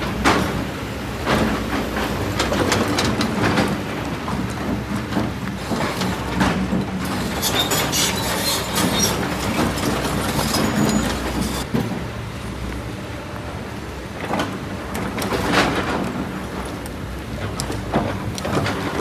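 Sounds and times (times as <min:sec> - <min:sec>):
excavator diesel engine running: 0:00.0 - 0:19.0
bucket scraping in rock and sand: 0:05.5 - 0:11.7.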